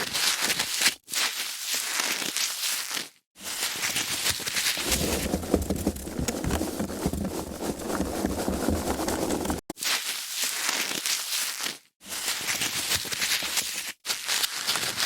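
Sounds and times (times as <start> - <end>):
foam packaging crackling: 4.8 - 9.7.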